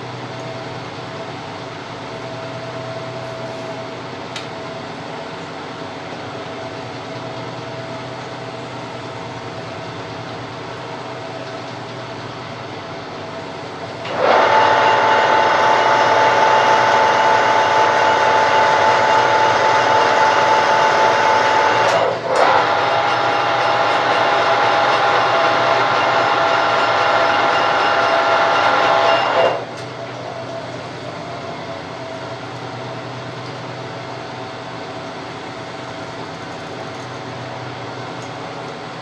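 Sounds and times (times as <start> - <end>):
lathe running: 14.0 - 30.4.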